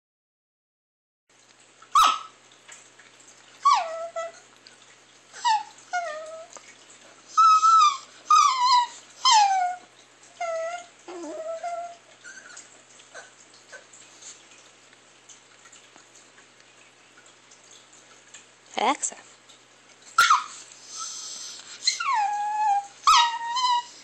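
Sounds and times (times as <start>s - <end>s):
small dog whining and yelping: 1.9s - 2.4s, 3.6s - 4.5s, 5.3s - 6.6s, 7.3s - 13.8s, 20.2s - 24.0s.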